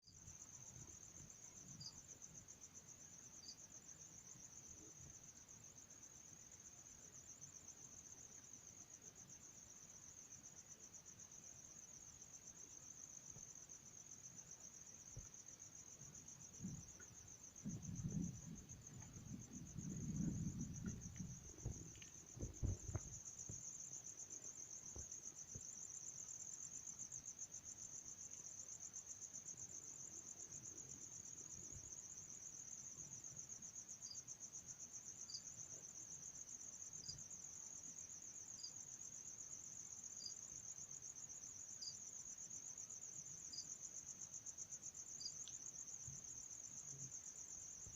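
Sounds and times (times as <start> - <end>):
insects trilling: 0.1 - 47.9
low thumps and rumbles: 17.6 - 23.6.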